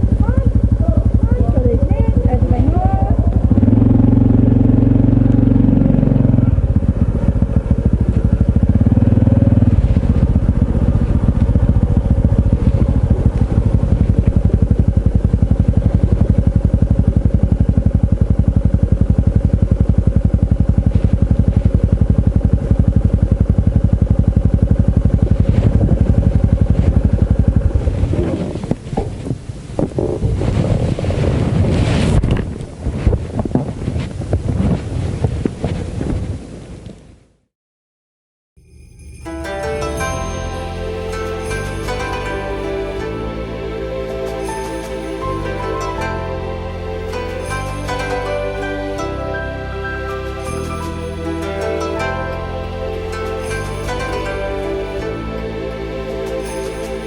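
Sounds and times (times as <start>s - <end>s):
motorcycle engine puttering: 0.0s - 30.2s.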